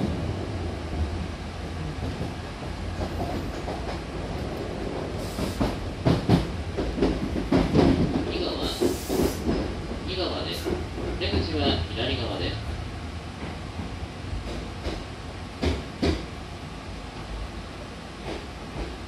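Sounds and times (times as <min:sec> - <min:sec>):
train running rumble: 0:00.0 - 0:19.0.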